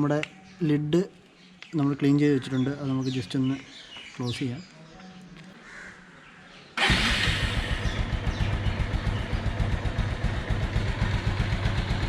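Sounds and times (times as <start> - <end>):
motorcycle engine idling: 6.8 - 12.0.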